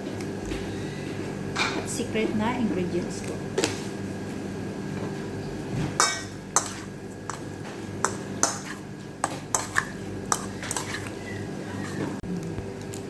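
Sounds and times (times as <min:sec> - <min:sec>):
utensil clinking against a dish: 0:06.0 - 0:12.1.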